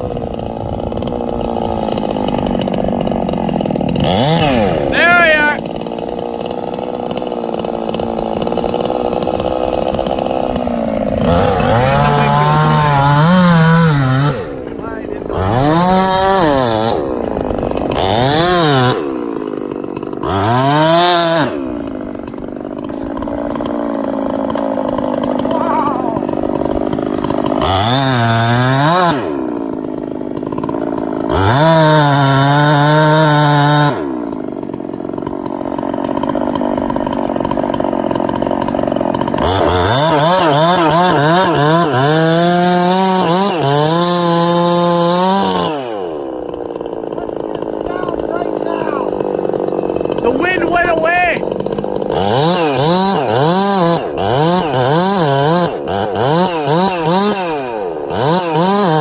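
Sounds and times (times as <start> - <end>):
chainsaw engine revving: 0.0 - 59.0.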